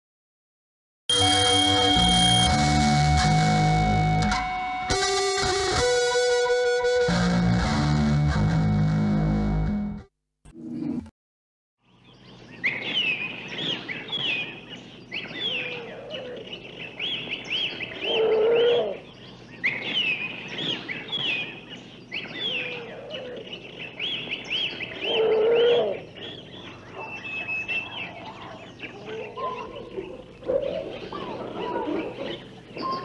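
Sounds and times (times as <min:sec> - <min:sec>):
chorus of bird chirps: 0:11.8 - 0:33.0
low-pitched animal call: 0:18.0 - 0:19.0, 0:25.0 - 0:26.1.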